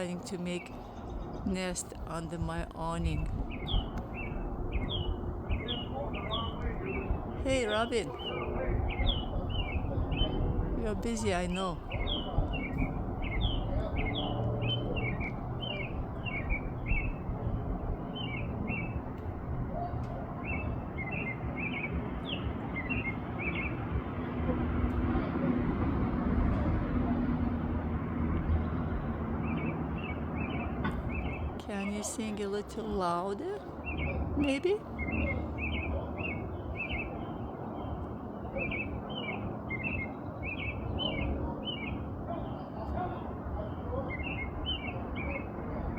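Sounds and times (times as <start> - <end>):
bird warbling song: 0.0 - 19.1, 29.4 - 45.9
low background rumble: 0.0 - 37.8.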